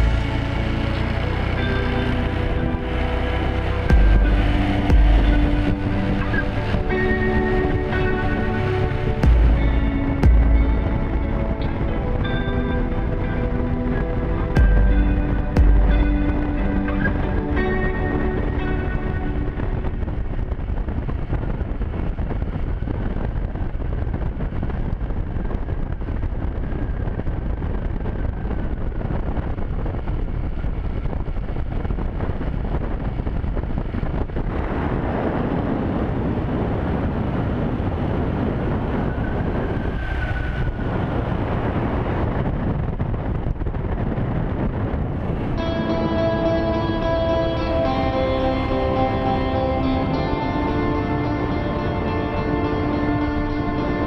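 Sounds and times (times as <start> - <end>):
motorcycle engine running: 0.0 - 7.6, 9.2 - 11.7, 14.6 - 18.3
wind buffeting microphone: 0.0 - 54.0.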